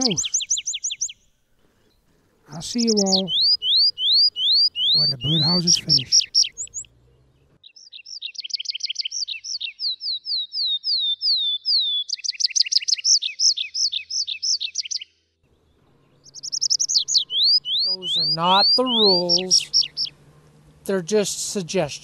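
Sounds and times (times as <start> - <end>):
songbird trilling: 0.0 - 1.2, 2.5 - 6.9, 7.6 - 15.2, 16.1 - 20.2.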